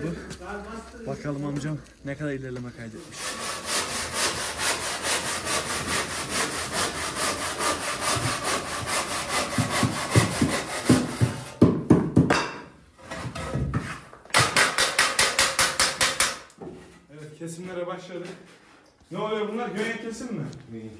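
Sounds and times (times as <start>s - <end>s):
hand saw cutting: 3.0s - 11.6s
knocks: 9.4s - 16.8s.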